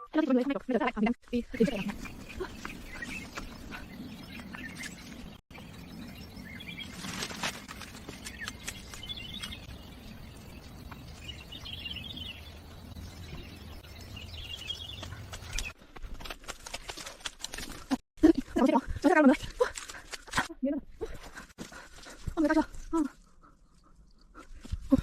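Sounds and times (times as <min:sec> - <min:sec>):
small birds chirping: 0:01.4 - 0:15.8.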